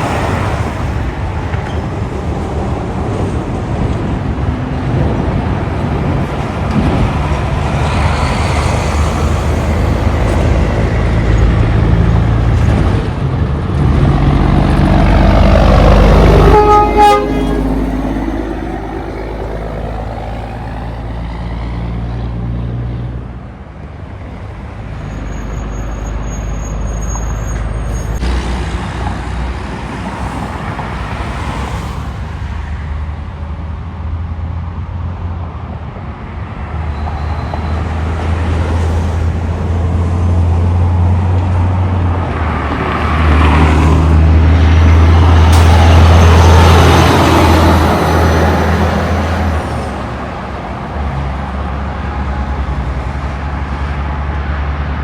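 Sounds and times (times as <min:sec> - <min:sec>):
traffic noise: 0:00.0 - 0:55.0
truck diesel engine passing: 0:00.0 - 0:55.0
truck horn blast: 0:16.0 - 0:18.8.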